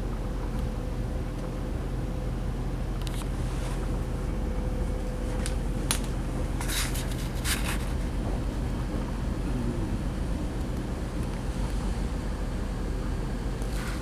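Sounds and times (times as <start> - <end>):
train diesel engine rumbling: 0.1 - 14.0.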